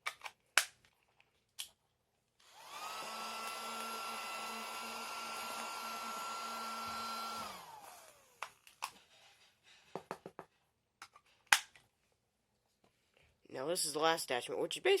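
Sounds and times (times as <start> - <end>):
handheld vacuum whining: 2.4 - 8.6.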